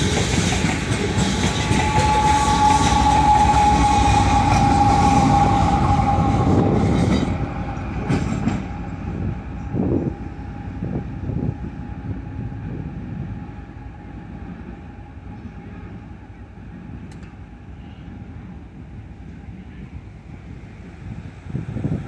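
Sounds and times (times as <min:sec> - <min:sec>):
train wheels rumbling over rails: 0:00.0 - 0:22.0
steady high tone: 0:01.0 - 0:10.4.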